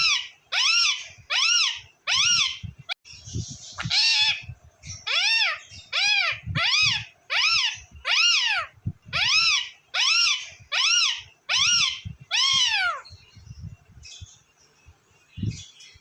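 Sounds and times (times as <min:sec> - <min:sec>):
parrot meow-like call: 0:05.1 - 0:13.1.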